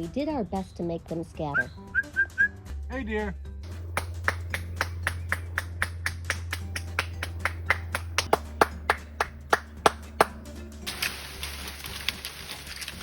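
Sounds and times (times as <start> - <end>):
sharp hand claps: 3.7 - 10.5.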